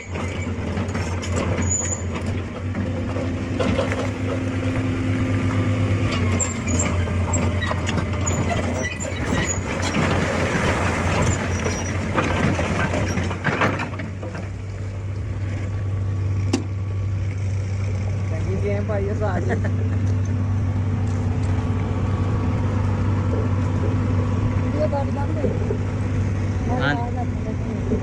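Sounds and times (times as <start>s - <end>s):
excavator diesel engine running: 0.0s - 28.0s
bucket knocking and scraping rock: 3.7s - 14.7s.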